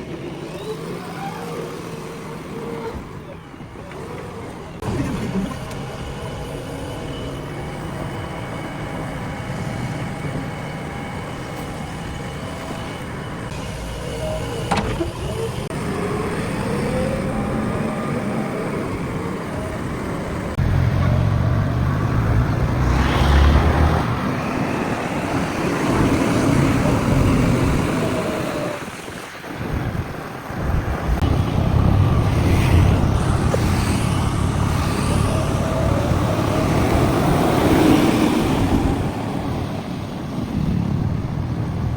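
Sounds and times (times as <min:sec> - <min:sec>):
diesel engine under load: 0:00.0 - 0:41.9.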